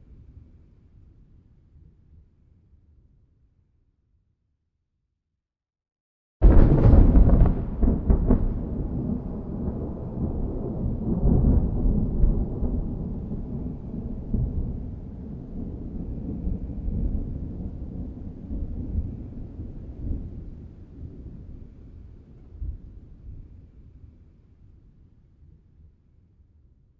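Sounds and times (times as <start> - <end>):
thunder rumbling and crackling: 6.4 - 23.5.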